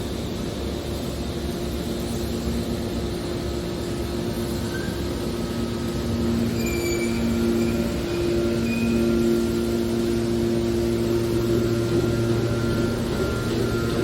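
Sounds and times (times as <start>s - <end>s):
industrial machinery hum: 0.0s - 14.0s
faint high squeals: 4.6s - 5.2s, 6.4s - 9.9s.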